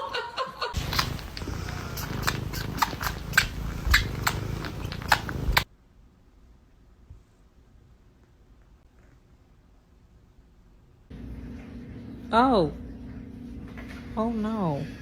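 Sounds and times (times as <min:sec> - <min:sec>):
cat purring: 0:00.8 - 0:05.7.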